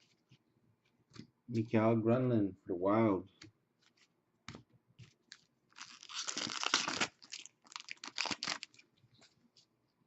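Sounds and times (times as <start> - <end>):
foil wrapper tearing and crinkling: 5.3 - 8.8.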